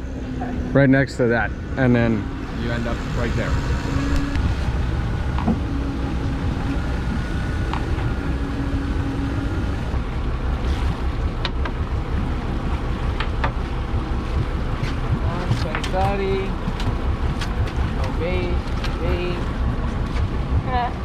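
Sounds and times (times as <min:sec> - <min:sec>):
faint hum: 0:00.0 - 0:10.1
boat engine rumble: 0:00.0 - 0:21.0
water noise: 0:00.0 - 0:21.0
wind: 0:00.0 - 0:21.0.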